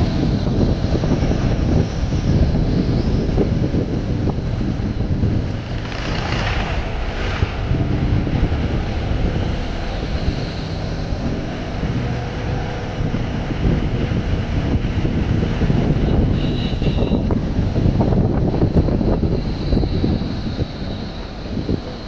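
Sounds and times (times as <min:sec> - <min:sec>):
vehicle engine and road rumble: 0:00.0 - 0:22.0
wind buffeting microphone: 0:00.0 - 0:22.0.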